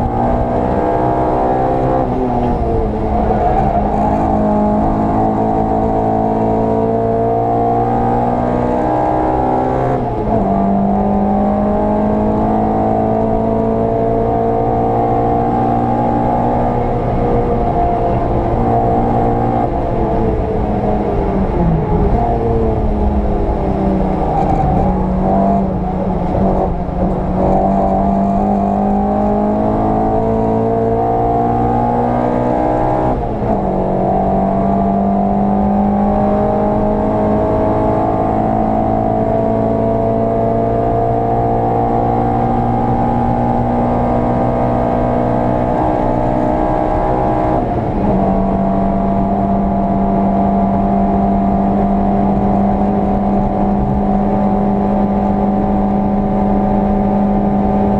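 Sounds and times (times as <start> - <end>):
car engine pulling through gears: 0.0 - 57.9.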